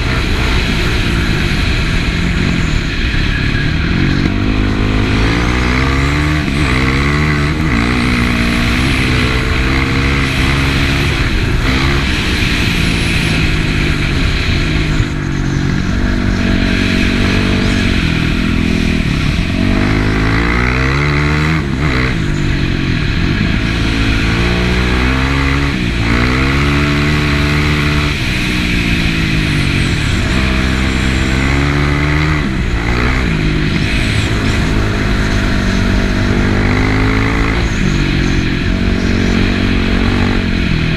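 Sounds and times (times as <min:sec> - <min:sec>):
motorcycle engine revving: 0:00.0 - 0:40.9
steady rushing noise: 0:00.0 - 0:40.9.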